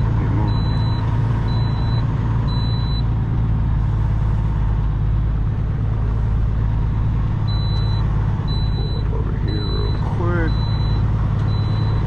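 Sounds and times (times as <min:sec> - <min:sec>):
diesel truck engine running: 0:00.0 - 0:12.0
short high beeps: 0:07.5 - 0:12.0.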